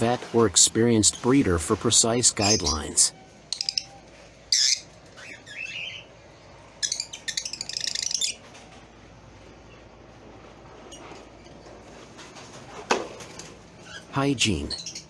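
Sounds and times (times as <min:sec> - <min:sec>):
lovebirds chirping: 0:00.0 - 0:08.6, 0:13.8 - 0:15.0.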